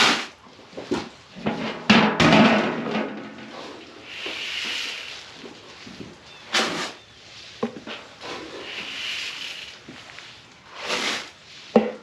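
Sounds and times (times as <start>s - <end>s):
soft hissing rustle: 3.4s - 12.0s.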